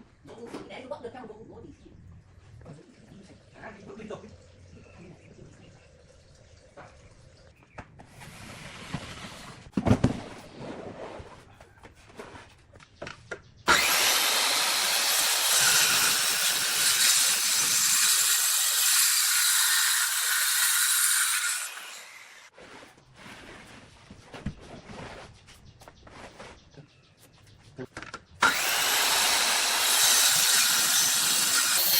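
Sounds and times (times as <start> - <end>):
hissing tool: 13.7 - 22.5, 28.4 - 31.9.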